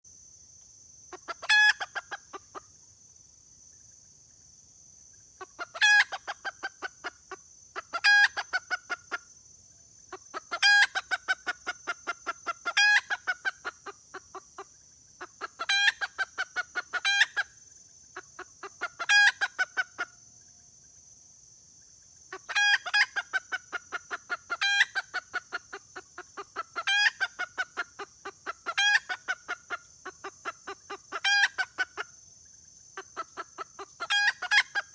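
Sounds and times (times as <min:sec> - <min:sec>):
steady high-pitched hiss: 0:00.1 - 0:34.9
hen cackling: 0:01.1 - 0:02.6, 0:05.4 - 0:09.2, 0:10.1 - 0:17.5, 0:18.2 - 0:20.1, 0:22.3 - 0:32.1, 0:33.0 - 0:34.9.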